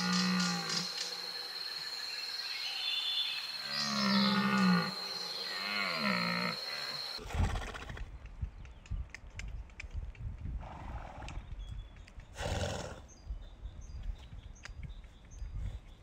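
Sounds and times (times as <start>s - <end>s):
small birds chirping: 0.0s - 7.2s, 11.3s - 16.0s
horse snorts: 12.4s - 13.0s.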